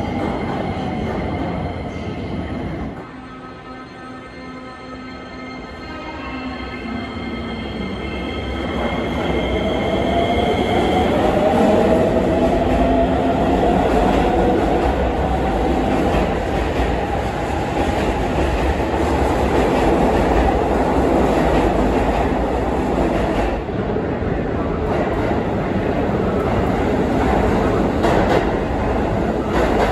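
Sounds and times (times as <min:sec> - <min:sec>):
train wheels rumbling on rails: 0:08.4 - 0:29.9.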